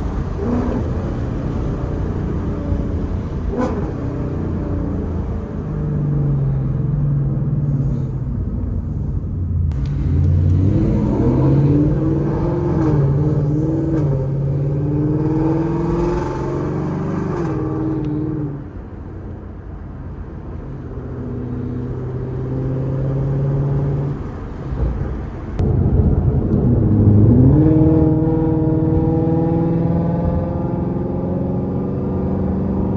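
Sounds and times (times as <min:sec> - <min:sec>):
car engine accelerating: 0:00.0 - 0:32.9.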